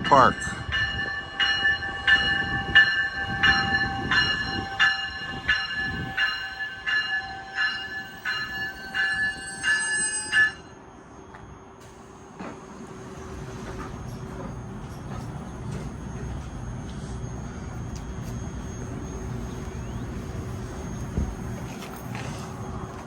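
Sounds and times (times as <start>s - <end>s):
warning bell ringing: 0.0s - 10.8s
passing train rumble: 0.0s - 23.0s.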